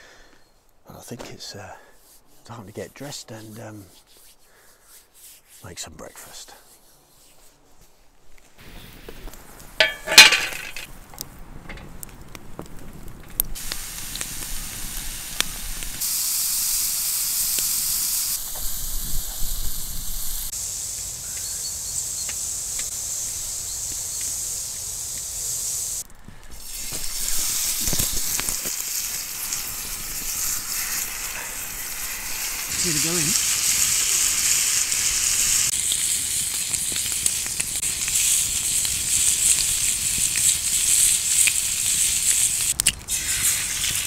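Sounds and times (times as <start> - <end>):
loud metal clank: 9.8 - 10.8
food sizzling in a pan: 13.6 - 44.0.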